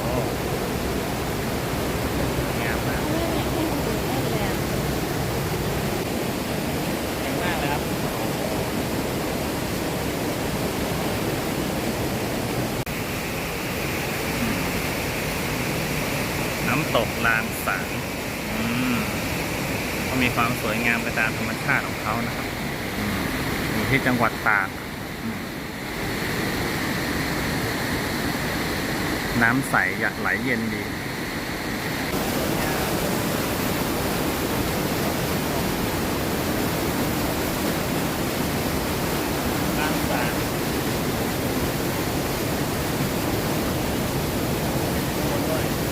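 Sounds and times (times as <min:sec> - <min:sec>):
waterfall rushing: 0:00.0 - 0:45.9
high hiss: 0:12.9 - 0:34.7.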